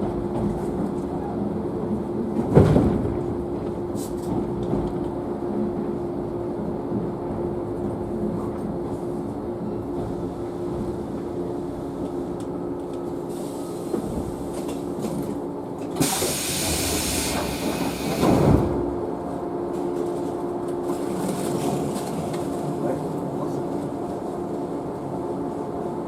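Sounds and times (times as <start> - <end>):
electric train equipment hum: 0.0 - 26.0
train doors closing thud: 2.3 - 4.9, 13.9 - 19.0.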